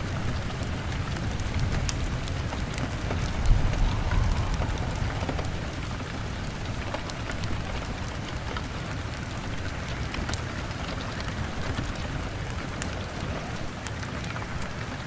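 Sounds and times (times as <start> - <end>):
rain on a window: 0.0 - 15.0
low rumble: 2.2 - 7.8.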